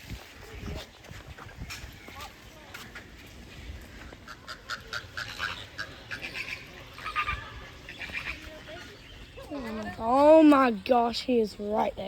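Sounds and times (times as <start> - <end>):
ducks calling: 3.7 - 9.9.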